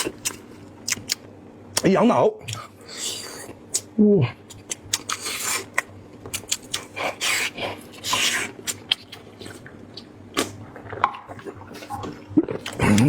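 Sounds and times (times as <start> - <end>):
wet smacking mouth clicks: 0.2 - 1.2, 4.5 - 6.9, 12.4 - 13.0.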